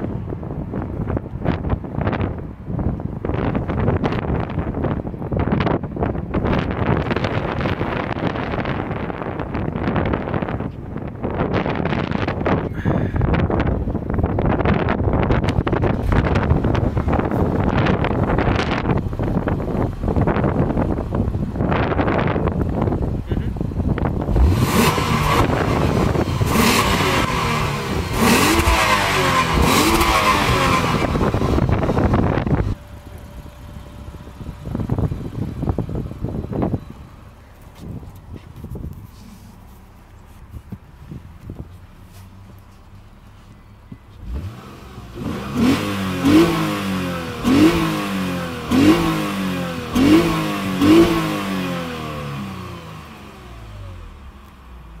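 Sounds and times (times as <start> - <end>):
car engine revving: 15.2 - 55.0.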